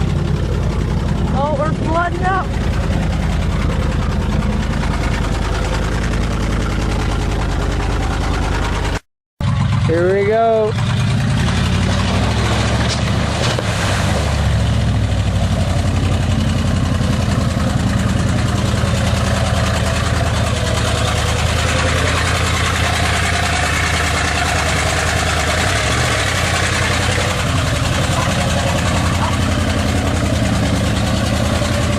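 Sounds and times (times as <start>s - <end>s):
truck engine running: 0.0s - 31.9s
water and mud splashing: 11.0s - 31.9s.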